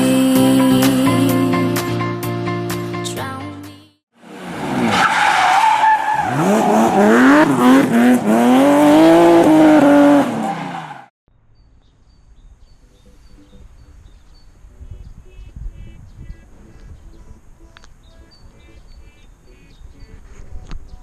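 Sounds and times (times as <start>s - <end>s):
car engine revving: 4.2s - 11.1s
tyres squealing and skidding: 4.4s - 11.1s.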